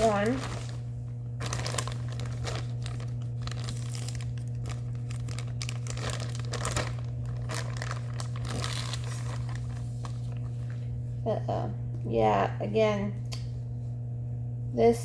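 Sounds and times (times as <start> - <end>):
plastic packaging crinkling: 0.0 - 11.0
steady low hum: 0.0 - 15.0.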